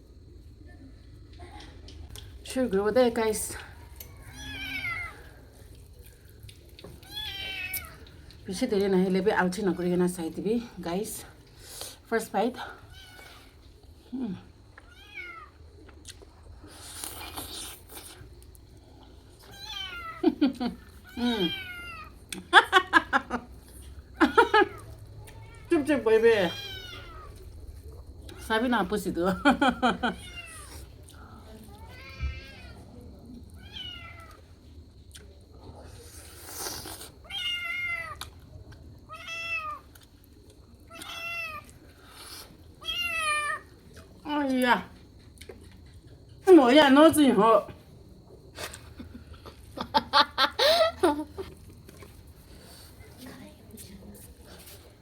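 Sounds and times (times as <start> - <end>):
cat meowing: 4.1 - 5.3, 7.0 - 8.1, 14.8 - 15.6, 19.5 - 20.2, 21.0 - 22.2, 26.4 - 27.4, 33.6 - 34.4, 37.2 - 38.2, 39.1 - 39.8, 40.9 - 41.7, 42.8 - 43.7.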